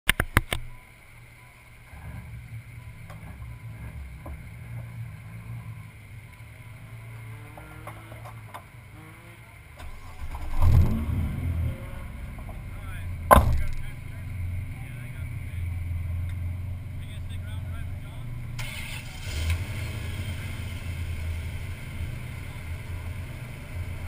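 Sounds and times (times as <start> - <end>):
car engine idling: 0.1 - 24.0
camera mount knocks: 13.3 - 13.8.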